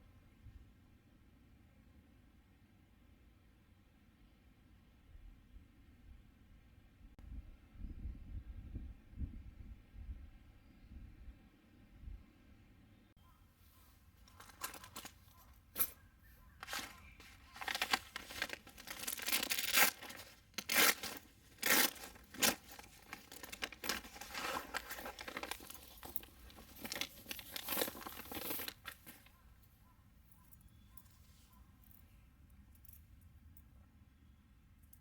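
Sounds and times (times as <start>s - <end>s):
paper crinkling and tearing: 14.2s - 15.9s, 16.6s - 29.3s.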